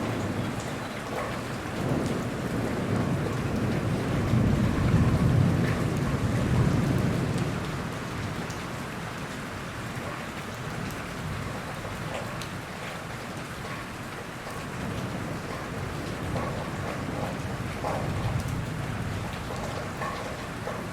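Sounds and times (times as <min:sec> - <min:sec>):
rain falling: 0:00.0 - 0:20.9.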